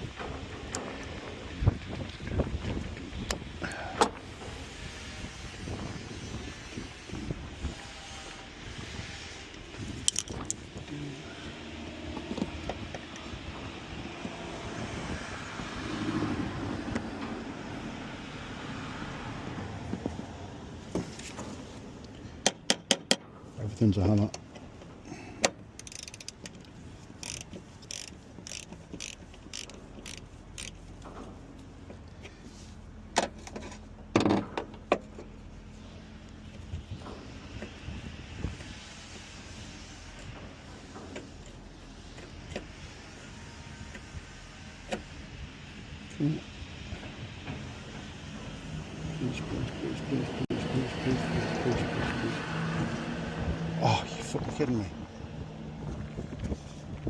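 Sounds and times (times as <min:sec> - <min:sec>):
ratchet-like clicks: 0:25.4 - 0:30.9.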